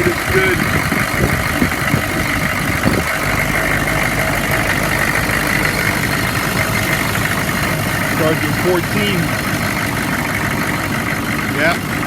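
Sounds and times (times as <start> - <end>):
diesel engine idling: 0.0 - 12.0
person speaking: 8.1 - 9.4.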